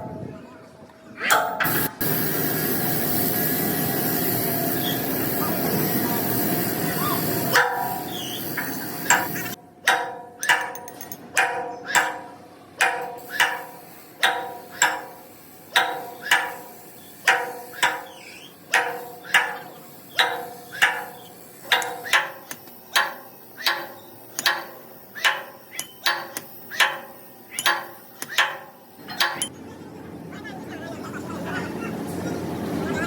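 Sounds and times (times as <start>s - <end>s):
hammer ringing on metal: 7.4s - 29.5s.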